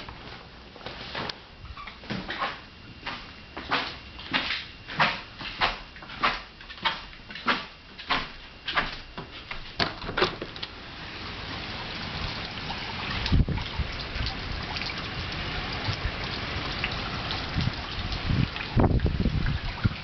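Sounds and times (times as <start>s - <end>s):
running water: 3.6s - 20.0s
rain hiss: 10.5s - 19.8s
water splashing: 10.8s - 20.0s.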